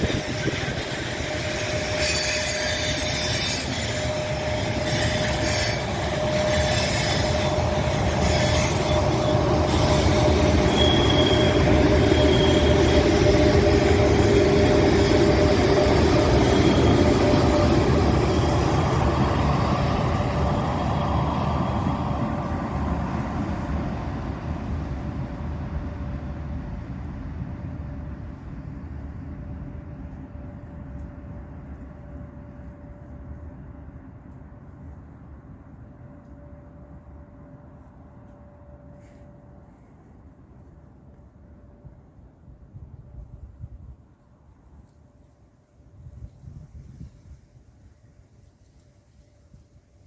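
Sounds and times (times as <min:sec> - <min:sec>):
flange squeals: 0:00.0 - 0:24.0
train wheels rumbling on rail: 0:00.0 - 0:50.0.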